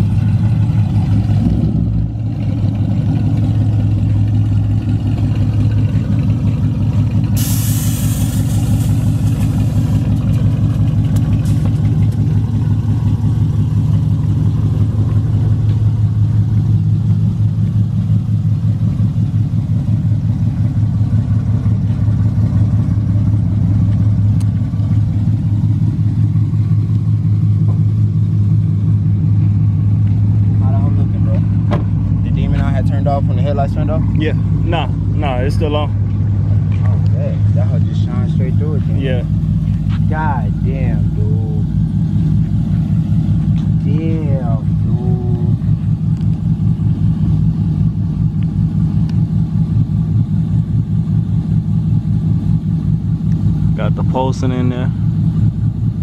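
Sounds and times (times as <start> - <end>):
car engine idling: 0.0 - 56.0
brief hiss: 7.4 - 9.0.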